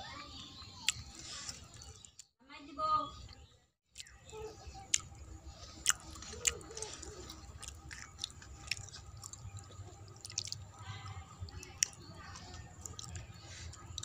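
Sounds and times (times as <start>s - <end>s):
person chewing food: 0.8s - 2.3s, 4.0s - 4.2s, 4.8s - 14.0s.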